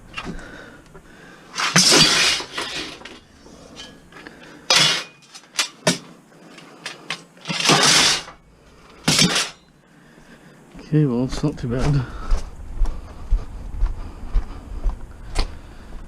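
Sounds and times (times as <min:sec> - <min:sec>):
hard objects clattering: 0:01.5 - 0:09.7.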